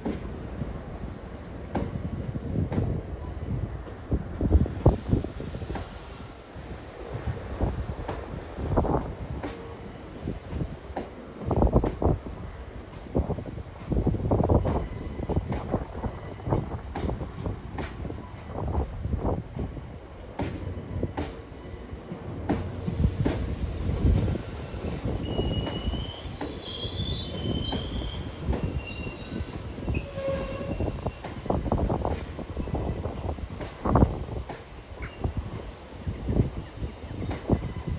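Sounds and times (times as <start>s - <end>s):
high-pitched wheel squeal: 25.3s - 31.5s.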